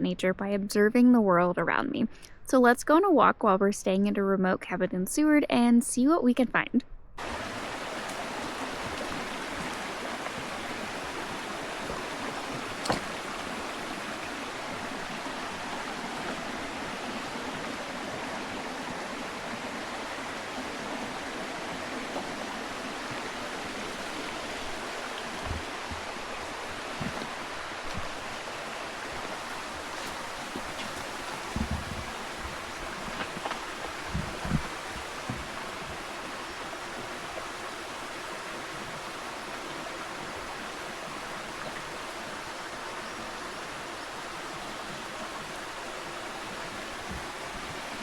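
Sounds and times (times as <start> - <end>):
water rushing on shoreline: 7.2 - 48.0
low thumps: 30.1 - 36.0.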